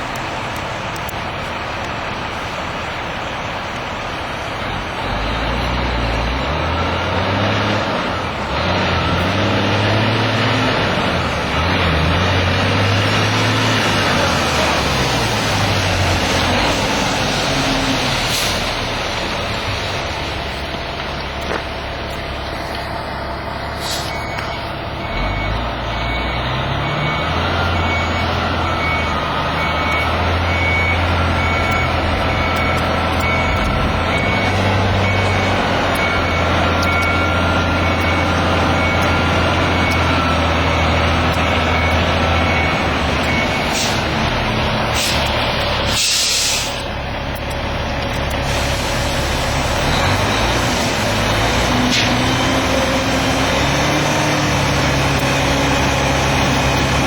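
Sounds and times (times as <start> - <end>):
diesel engine under load: 0.0 - 57.0
reversing alarm beeping: 5.1 - 57.0
air brakes hissing: 16.4 - 19.1, 23.6 - 24.5, 43.4 - 44.2, 44.8 - 46.9, 48.3 - 52.5.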